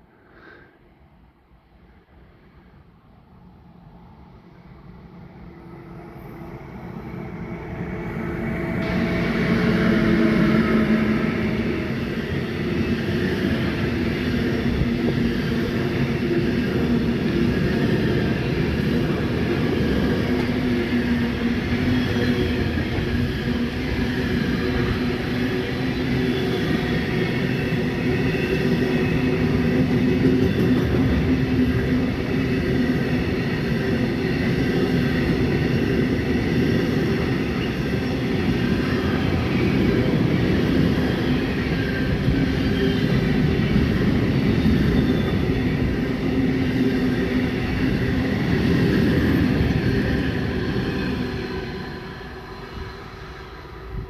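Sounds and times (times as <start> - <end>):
freight train passing: 0.8 - 54.0
wagons rumbling on rails: 6.2 - 54.0.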